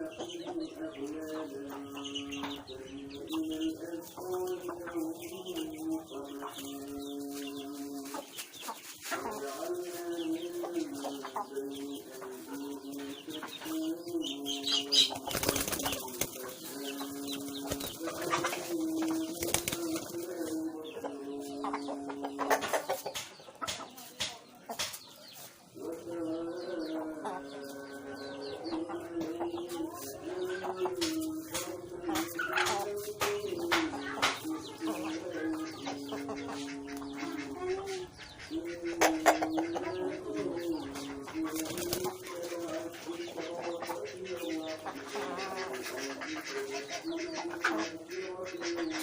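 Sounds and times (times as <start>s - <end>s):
wings flapping: 14.9s - 16.8s, 17.4s - 20.5s, 41.5s - 42.2s.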